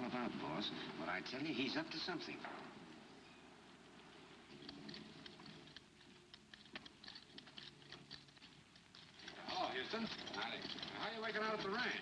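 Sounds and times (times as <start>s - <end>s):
faint clicks and ticks: 4.4s - 12.0s.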